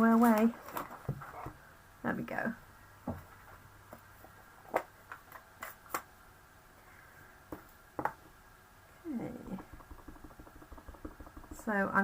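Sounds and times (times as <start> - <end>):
stamping supplies clicking on desk: 9.4 - 12.0.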